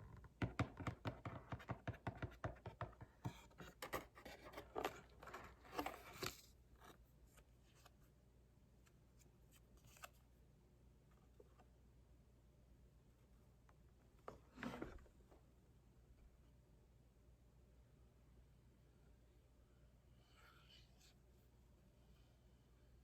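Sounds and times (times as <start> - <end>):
packaging taps and scrapes: 0.6 - 7.0.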